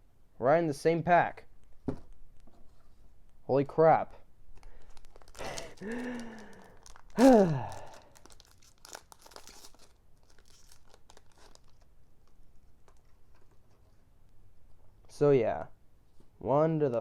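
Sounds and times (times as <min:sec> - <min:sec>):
foil crinkling and tearing: 0:04.6 - 0:11.9
man exclaiming: 0:07.2 - 0:07.9.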